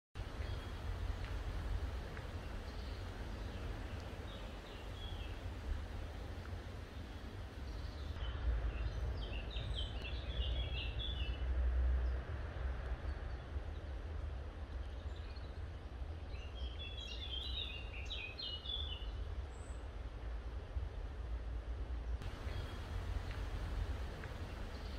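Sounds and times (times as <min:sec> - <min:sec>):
steady low rumble: 0:00.2 - 0:10.1, 0:22.2 - 0:24.9
bird chirping: 0:00.2 - 0:11.4, 0:22.2 - 0:24.9.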